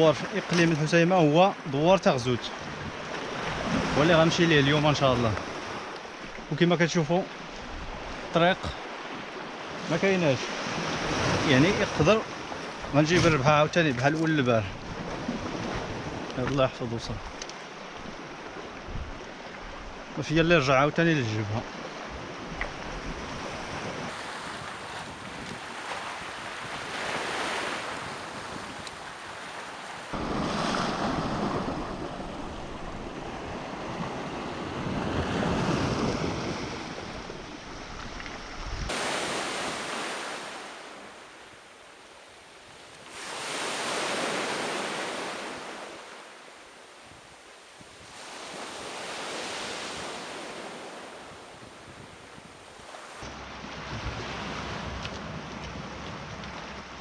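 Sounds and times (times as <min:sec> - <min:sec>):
sea waves breaking: 0:00.0 - 0:57.0
wind on microphone: 0:18.1 - 0:20.0, 0:22.1 - 0:39.9, 0:49.6 - 0:57.0.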